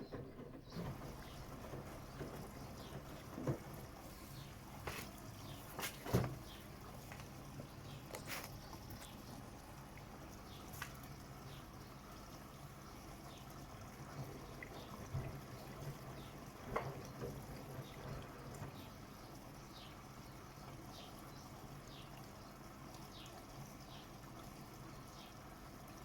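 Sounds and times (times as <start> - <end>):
washing machine motor hum: 0.0 - 26.0
water sloshing in turning drum: 0.0 - 26.0
splashes and knocks: 0.1 - 9.2.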